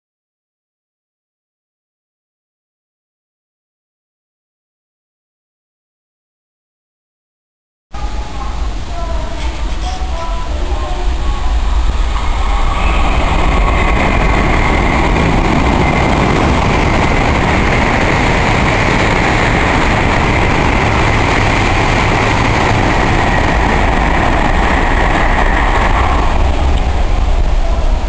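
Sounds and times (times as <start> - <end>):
high-speed train passing: 8.0 - 28.0
train high whine: 8.0 - 28.0.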